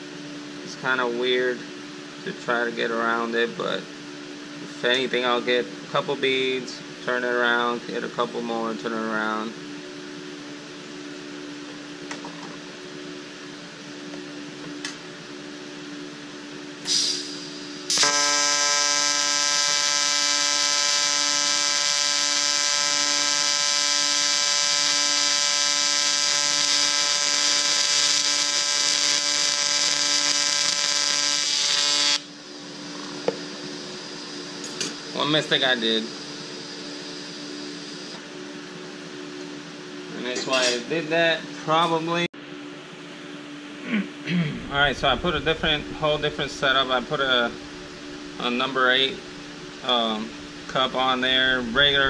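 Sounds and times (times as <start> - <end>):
faint machine hum: 0.0 - 52.0
short hiss: 16.8 - 17.5
welding arc buzzing: 16.9 - 38.2, 44.6 - 52.0.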